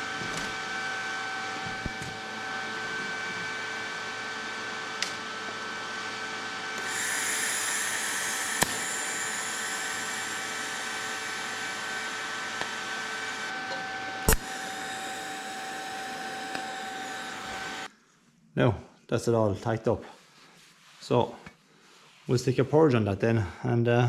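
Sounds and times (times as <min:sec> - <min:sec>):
welder hissing whine: 0:00.0 - 0:17.9.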